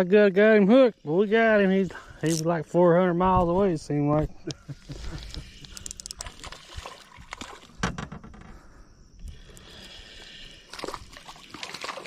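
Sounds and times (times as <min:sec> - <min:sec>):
water sloshing and splashing: 0:04.9 - 0:08.5, 0:09.5 - 0:12.0
clicks and knocks: 0:07.8 - 0:08.6.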